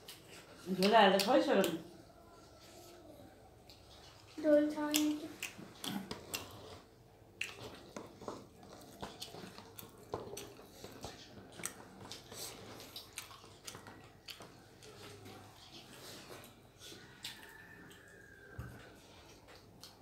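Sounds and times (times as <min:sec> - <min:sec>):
person chewing and lip-smacking: 0:03.5 - 0:20.0
wet mouth clicks: 0:04.8 - 0:06.7.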